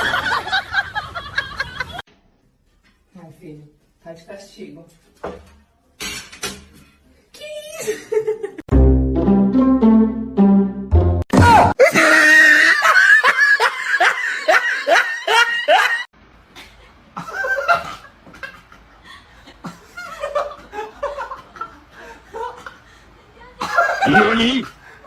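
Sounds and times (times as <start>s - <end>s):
person laughing hard: 11.8s - 16.1s.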